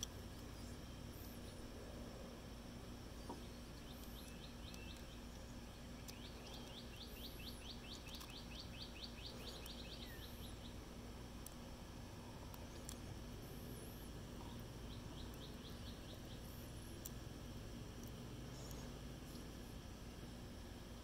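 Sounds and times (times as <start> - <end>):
faint clicks of small parts: 3.2 - 5.1, 6.0 - 6.8, 7.9 - 8.4, 12.4 - 13.1
thin very high bird calls: 3.3 - 10.8
songbird trilling: 3.5 - 10.8.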